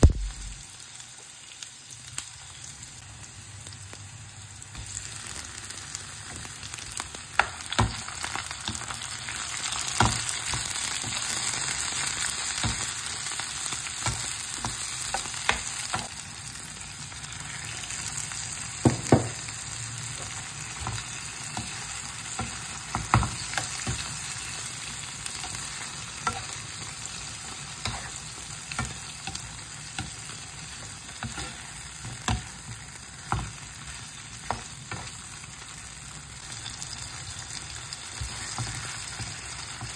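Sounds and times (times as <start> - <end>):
food sizzling in hot oil: 0.0 - 39.9
spatula knocking and scraping pan: 27.4 - 35.2.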